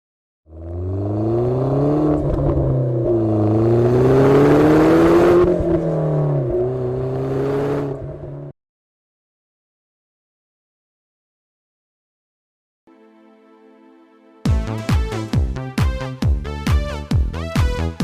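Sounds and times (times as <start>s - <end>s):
car engine revving: 0.5s - 8.5s.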